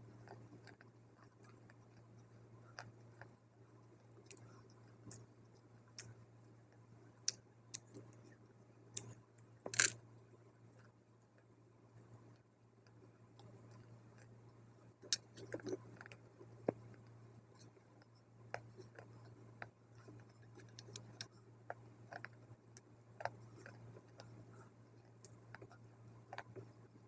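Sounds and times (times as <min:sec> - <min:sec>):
person chewing dry clay: 0:00.2 - 0:03.4, 0:04.0 - 0:06.2, 0:07.2 - 0:08.2, 0:08.9 - 0:10.0, 0:15.0 - 0:27.0.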